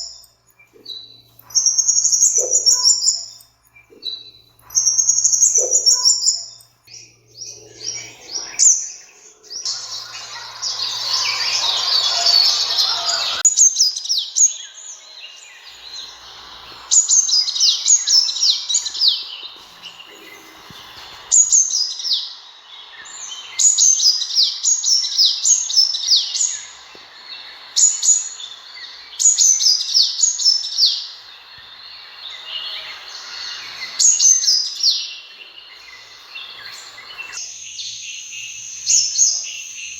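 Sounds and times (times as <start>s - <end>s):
sunbird song: 0.0s - 39.9s
rough hiss: 7.7s - 14.1s, 14.8s - 24.5s, 25.4s - 39.9s.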